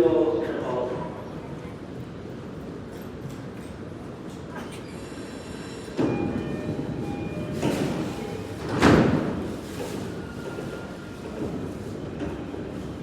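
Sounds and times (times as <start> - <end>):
door warning chime: 6.0 - 8.5
train doors shutting thud: 6.0 - 9.6.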